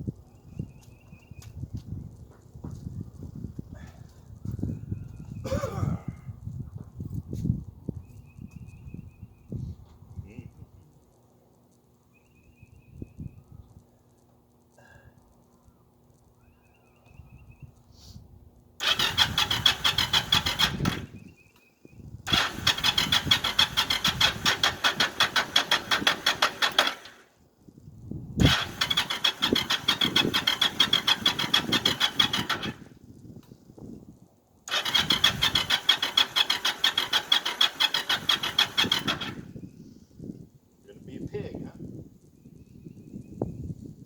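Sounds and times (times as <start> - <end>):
engine cranking on starter: 18.8 - 21.3, 22.3 - 27.3, 28.4 - 33.0, 34.6 - 39.6.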